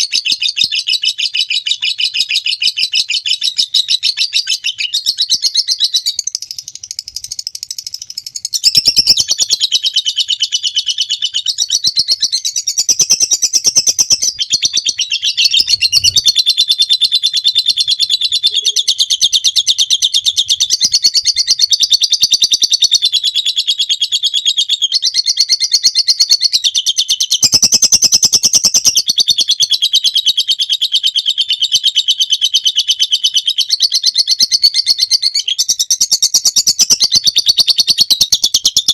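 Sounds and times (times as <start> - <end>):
bird chattering trill: 0.0 - 24.1.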